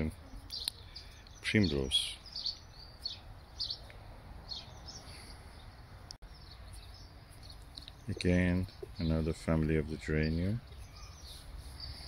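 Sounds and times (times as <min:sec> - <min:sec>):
faint low outdoor hum: 0:00.0 - 0:12.0
small birds chirping: 0:00.0 - 0:12.0.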